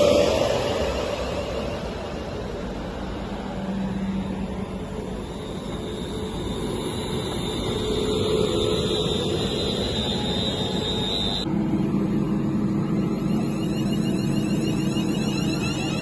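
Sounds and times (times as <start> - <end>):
passing train running noise: 0.0 - 16.0
thin high whine: 0.0 - 16.0.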